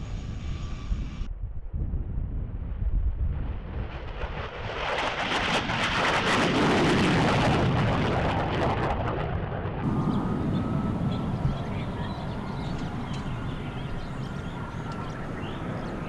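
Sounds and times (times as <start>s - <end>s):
wind rumble on microphone: 0.0s - 16.0s
airplane engines roaring by: 9.8s - 16.0s.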